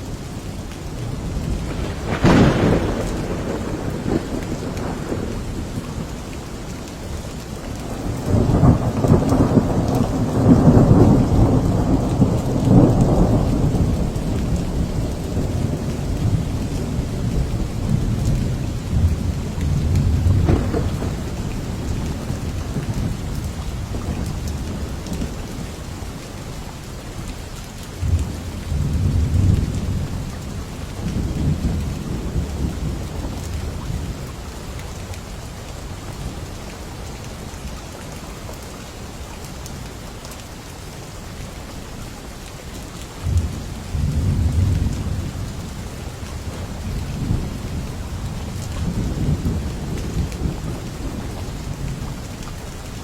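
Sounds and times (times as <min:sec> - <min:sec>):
steady rain: 0:00.0 - 0:53.0
thunder rumbling: 0:01.0 - 0:06.4, 0:07.5 - 0:25.6, 0:43.2 - 0:53.0.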